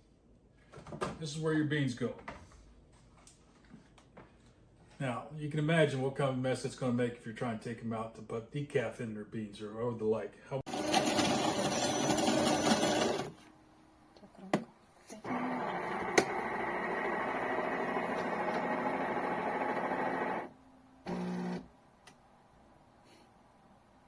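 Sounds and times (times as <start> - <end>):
small electric motor running: 15.3 - 20.5, 21.1 - 21.6.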